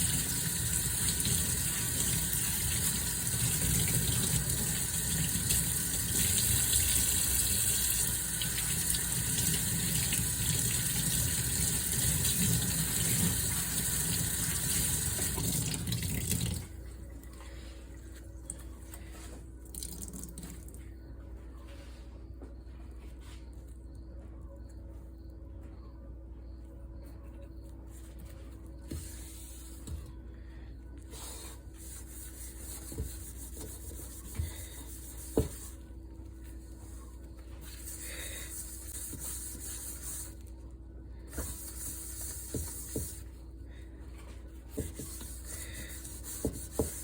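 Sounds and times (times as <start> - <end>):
tap running water into sink: 0.0 - 16.7.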